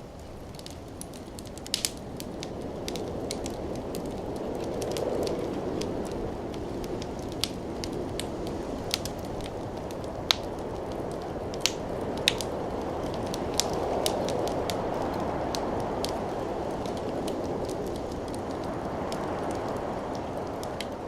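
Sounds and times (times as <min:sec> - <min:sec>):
fire burning in a fireplace: 0:00.0 - 0:21.0
fire crackling and popping: 0:00.0 - 0:21.0.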